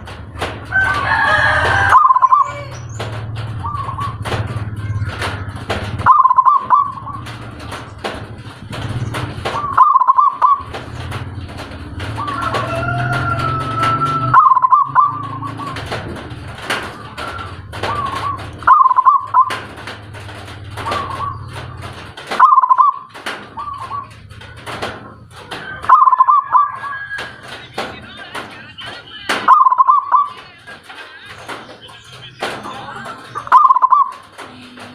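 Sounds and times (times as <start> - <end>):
scattered clicks: 0.0 - 34.9
songbird calling: 1.9 - 3.0, 6.0 - 7.3, 9.5 - 10.7, 14.3 - 15.8, 17.0 - 19.6, 20.8 - 21.6, 22.4 - 24.1, 25.8 - 27.0, 29.5 - 30.5, 31.8 - 34.2.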